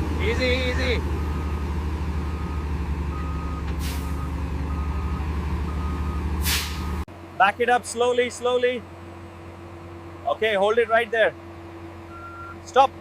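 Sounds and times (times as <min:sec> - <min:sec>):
diesel engine running: 0:00.0 - 0:13.0
reversing alarm beeping: 0:01.2 - 0:07.0, 0:12.1 - 0:12.6
air brake hisses: 0:03.7 - 0:04.3, 0:06.4 - 0:07.0.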